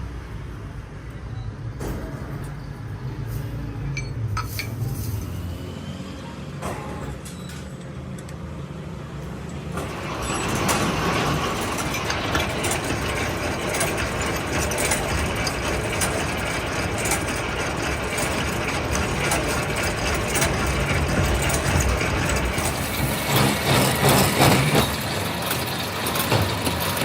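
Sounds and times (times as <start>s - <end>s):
machinery humming: 8.7s - 27.0s
machine working metal: 9.2s - 27.0s.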